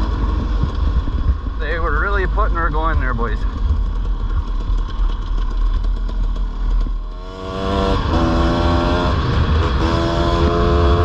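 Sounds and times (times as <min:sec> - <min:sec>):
dirt bike engine revving: 0:05.8 - 0:11.0.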